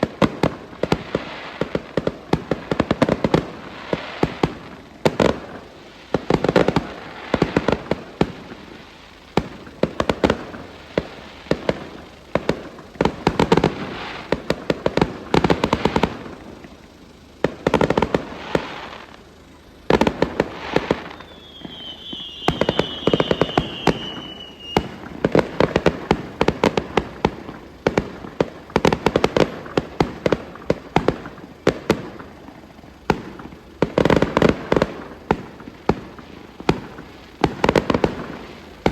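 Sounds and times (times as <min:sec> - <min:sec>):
fireworks bangs and crackling: 0:00.0 - 0:38.9
whistle falling in pitch: 0:21.0 - 0:25.0.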